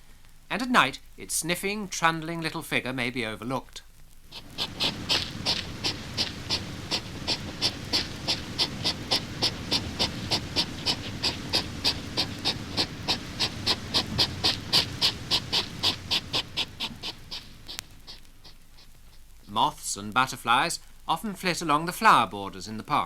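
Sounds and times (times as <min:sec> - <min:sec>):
hedgehog sniffing: 0:04.1 - 0:22.4.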